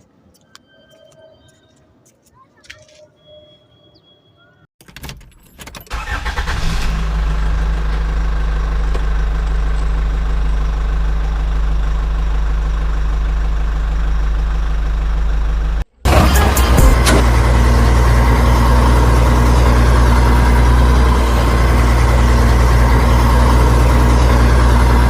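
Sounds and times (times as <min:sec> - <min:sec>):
engine starting and idling: 0:05.9 - 0:25.0.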